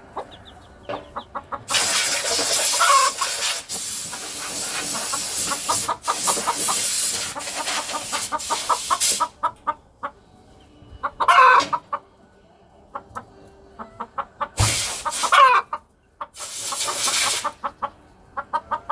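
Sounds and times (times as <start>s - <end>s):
chicken pitch-bending calls: 0.0s - 9.8s, 11.0s - 12.0s, 13.8s - 15.8s
chickens clucking: 0.0s - 18.9s
loud hissing noise: 1.7s - 9.4s, 14.6s - 15.4s, 16.4s - 17.6s.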